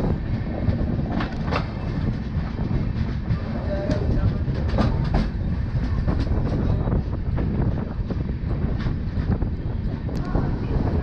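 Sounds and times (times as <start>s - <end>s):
wheels clicking over rail joints: 0.0s - 9.4s
train rumbling on track: 0.0s - 11.0s.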